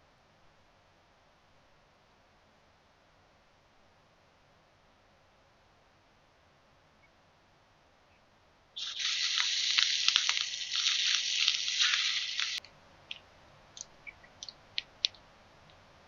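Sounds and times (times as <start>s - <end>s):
food sizzling in a pan: 8.8s - 12.6s.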